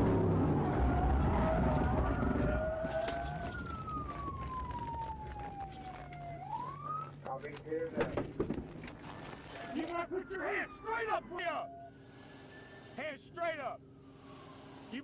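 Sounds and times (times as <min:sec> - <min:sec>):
police siren wailing: 0:00.0 - 0:07.5, 0:09.5 - 0:13.0, 0:14.1 - 0:15.0
car engine and road noise: 0:00.0 - 0:15.0.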